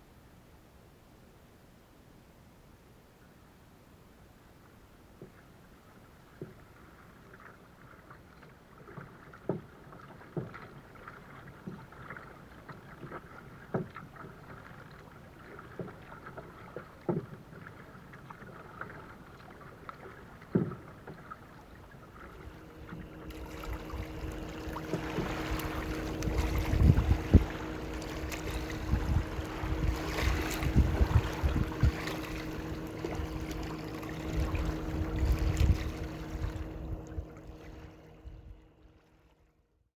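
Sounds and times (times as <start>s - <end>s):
paddle splashing in water: 5.2s - 38.5s
water trickling off paddle: 5.2s - 39.3s
wind on microphone: 22.4s - 38.6s.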